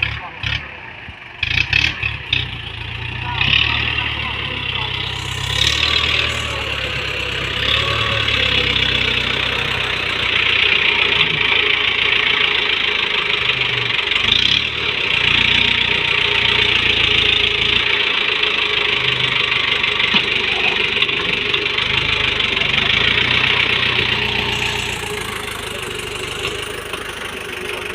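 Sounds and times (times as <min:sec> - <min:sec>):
diesel engine running: 0:00.0 - 0:27.9
high-pitched mechanical noise: 0:03.8 - 0:27.9.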